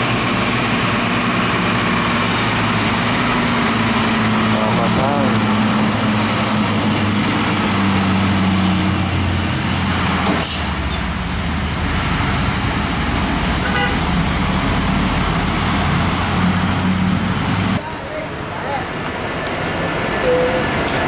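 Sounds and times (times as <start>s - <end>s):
diesel trucks passing: 0.0s - 21.0s
tyre and traffic noise: 0.0s - 21.0s
truck horn toot: 13.6s - 14.2s.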